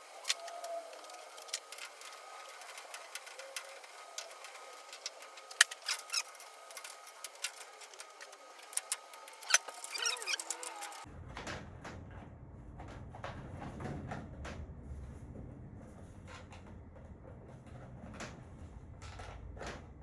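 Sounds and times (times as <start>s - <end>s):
short squeak: 5.7s - 7.1s, 8.6s - 11.0s.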